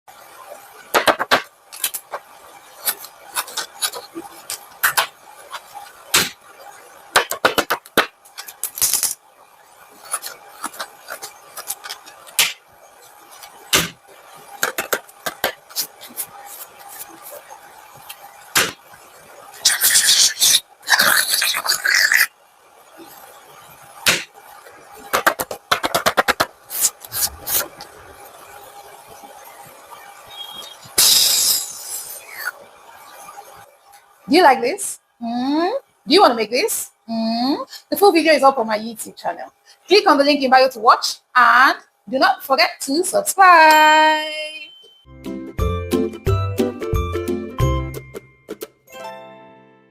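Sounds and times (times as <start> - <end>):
paper crinkling: 1.8 - 6.0, 9.9 - 13.9, 14.5 - 18.2.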